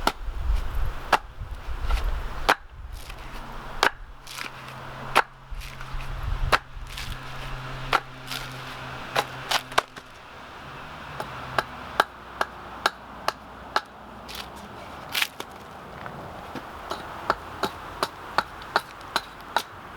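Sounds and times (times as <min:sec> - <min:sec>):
tool striking wooden stump: 0:00.0 - 0:00.2, 0:01.1 - 0:01.3, 0:01.9 - 0:10.3, 0:11.2 - 0:14.6, 0:16.9 - 0:19.7.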